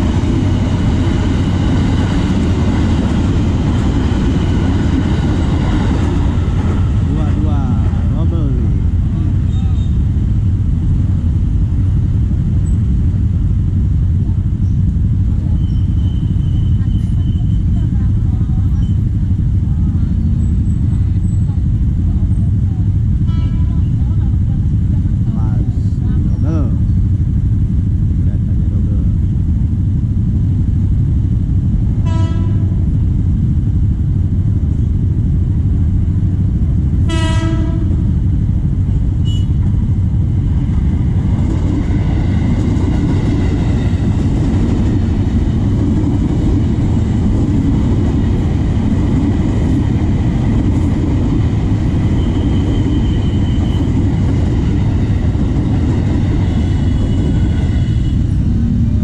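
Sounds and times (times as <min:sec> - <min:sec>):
idling traffic rumble: 0:00.0 - 0:59.0
train rumbling past: 0:00.0 - 0:59.0
train horn toots: 0:23.2 - 0:23.9, 0:32.0 - 0:32.8, 0:37.0 - 0:38.1, 0:39.2 - 0:39.6.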